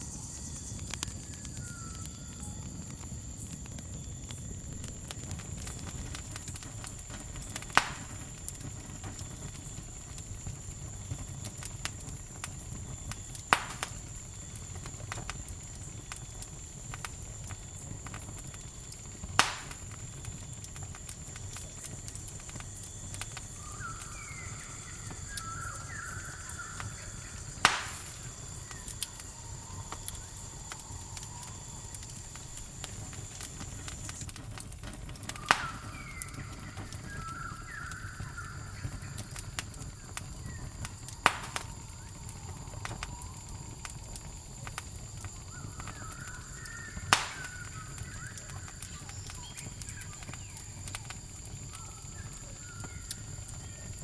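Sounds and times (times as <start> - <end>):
campfire burning: 0.0 - 54.0
fire crackling pops: 0.0 - 54.0
insect trill: 0.0 - 54.0.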